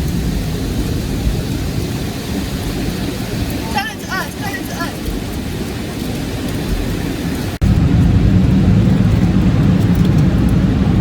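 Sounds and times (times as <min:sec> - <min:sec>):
car wash water spray rushing: 0:00.0 - 0:11.0
deep rumble: 0:05.0 - 0:11.0.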